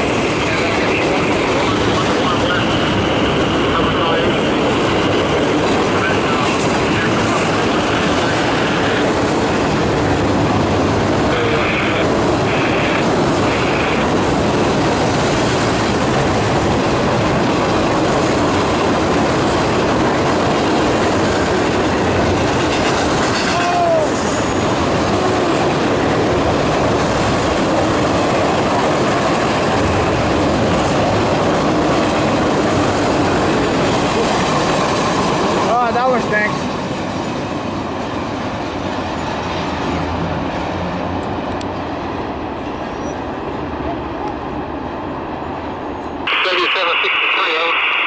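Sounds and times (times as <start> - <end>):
freight train wheels clickety-clack: 0.0 - 44.8.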